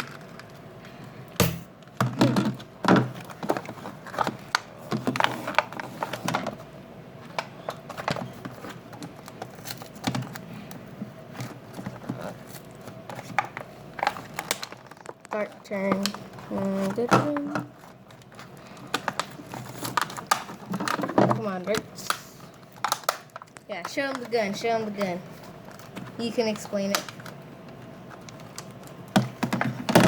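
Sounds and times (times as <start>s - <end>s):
packaging being handled and pulled apart: 11.5s - 24.3s.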